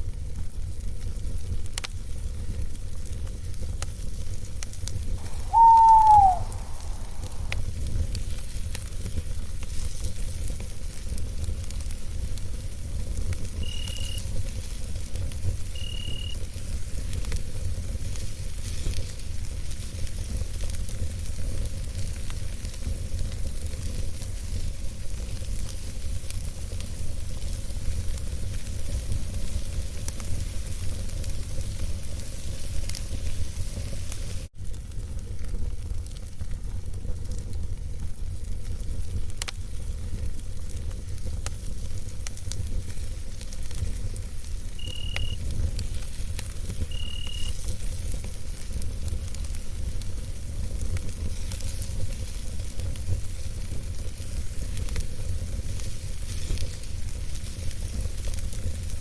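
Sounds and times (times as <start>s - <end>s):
campfire crackling and popping: 0.0s - 59.0s
steady low rumble: 5.2s - 5.6s, 6.4s - 8.0s
even hiss: 5.2s - 8.6s.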